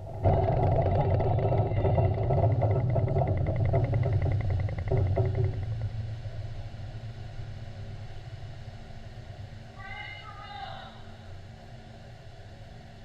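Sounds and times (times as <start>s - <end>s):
rapid high ticking: 0.0s - 6.6s
deep underwater explosion rumble: 0.0s - 8.7s.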